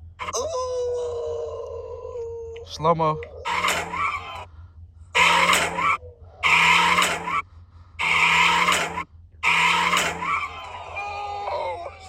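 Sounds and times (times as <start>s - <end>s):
tyres squealing and skidding: 3.4s - 4.5s, 5.2s - 7.4s, 8.0s - 12.0s.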